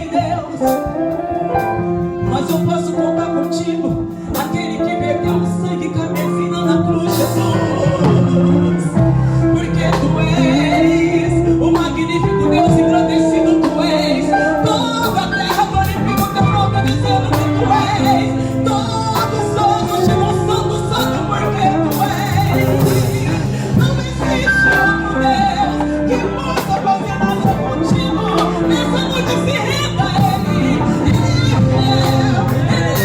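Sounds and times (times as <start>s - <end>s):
bass line: 0.0s - 33.0s
people singing: 0.0s - 33.0s.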